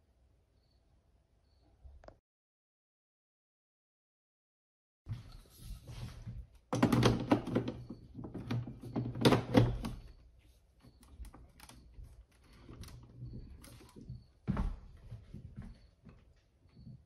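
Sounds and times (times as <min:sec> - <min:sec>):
hard objects clicking and knocking: 0:06.7 - 0:10.2.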